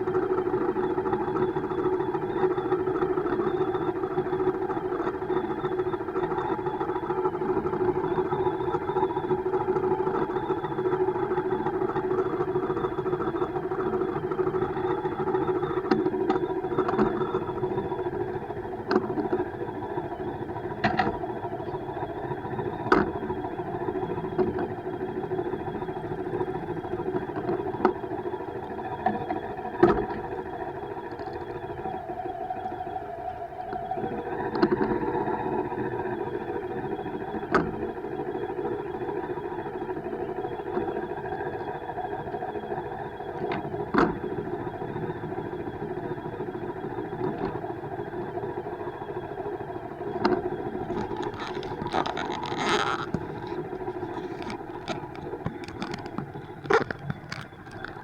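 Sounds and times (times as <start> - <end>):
bike riding hum: 46.4 - 58.0.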